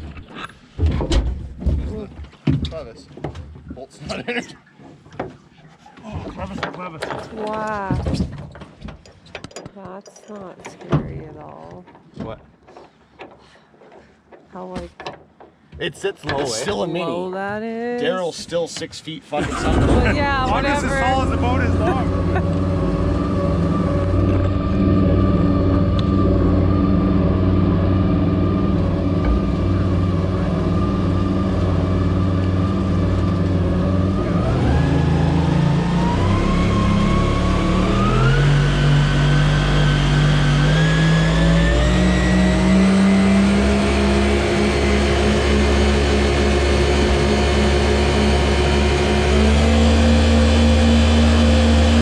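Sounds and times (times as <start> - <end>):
boat engine running: 19.4 - 52.0.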